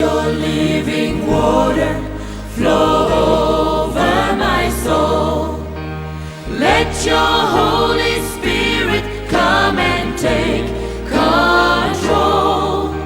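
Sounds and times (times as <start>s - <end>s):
choir singing worship music: 0.0s - 13.0s
low bass: 0.0s - 13.0s.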